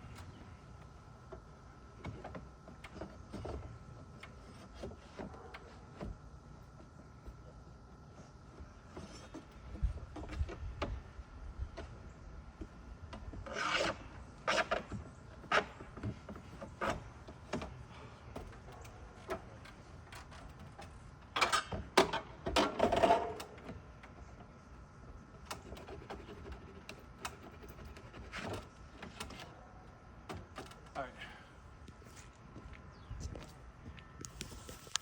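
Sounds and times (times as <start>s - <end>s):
wood scraping against wood: 13.2s - 20.7s.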